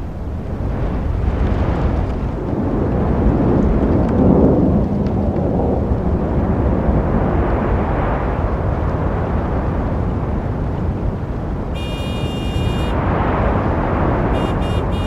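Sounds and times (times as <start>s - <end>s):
road traffic rumble: 0.0s - 2.3s, 10.3s - 15.0s
vehicle passing: 14.1s - 15.0s.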